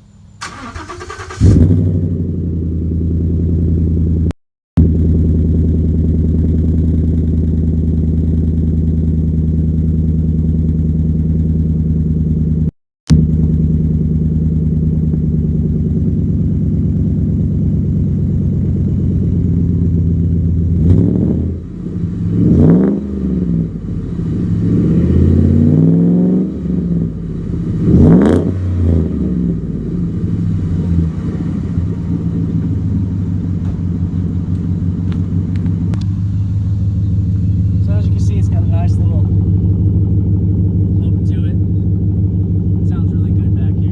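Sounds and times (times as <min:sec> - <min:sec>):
truck engine idling and revving: 0:00.3 - 0:43.9.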